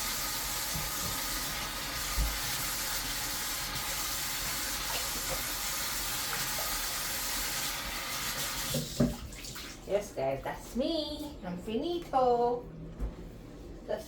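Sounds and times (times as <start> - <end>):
tap water running into sink: 0.0 - 9.8.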